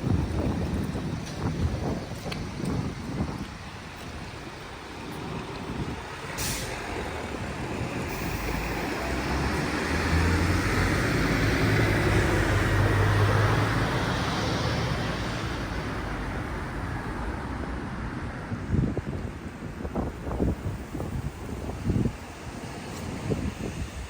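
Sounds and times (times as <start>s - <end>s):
vehicle driving past: 8.2s - 15.5s.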